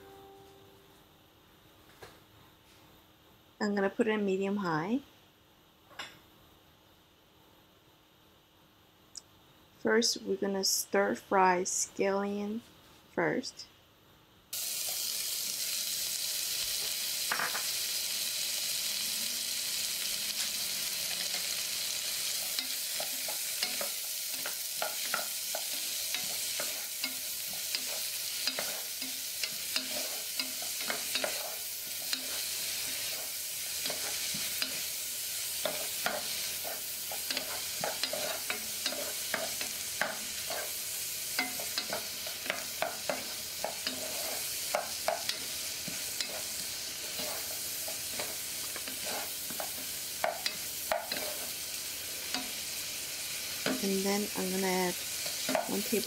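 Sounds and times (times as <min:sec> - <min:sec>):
scallions sizzling in hot oil: 0:14.5 - 0:56.0
wooden spatula clicking and scraping: 0:22.4 - 0:34.8, 0:35.6 - 0:40.8, 0:41.4 - 0:51.5.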